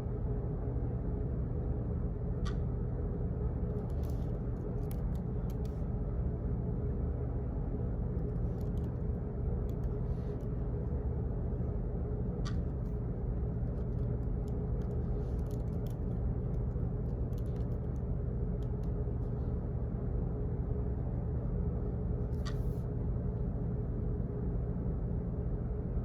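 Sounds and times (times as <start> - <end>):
low hum and rumble: 0.0 - 26.0
faint clicks and ticks: 2.4 - 2.7, 3.6 - 5.8, 8.1 - 10.6, 12.4 - 19.4.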